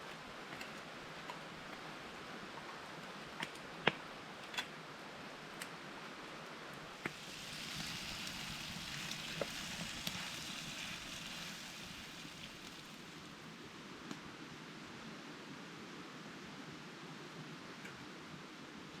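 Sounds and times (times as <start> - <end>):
campfire crackling: 6.9 - 14.2.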